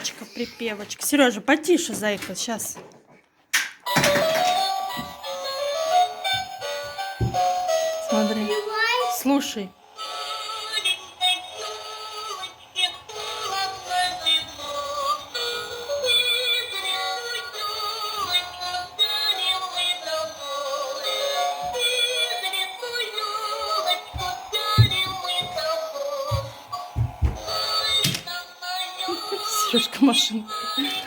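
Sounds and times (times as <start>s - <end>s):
toy doll singing over music: 9.9s - 26.7s, 27.5s - 29.7s
low knocks: 26.4s - 27.6s.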